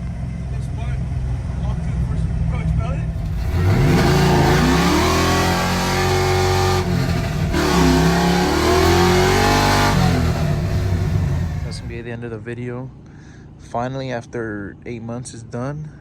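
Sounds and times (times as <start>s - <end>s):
truck engine revving: 3.1s - 12.1s.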